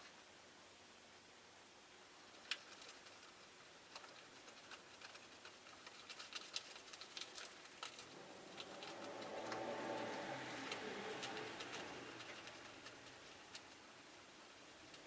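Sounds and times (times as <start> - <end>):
birds clicking and tapping in cage: 2.4 - 13.9
soft low rumbling: 7.5 - 15.0.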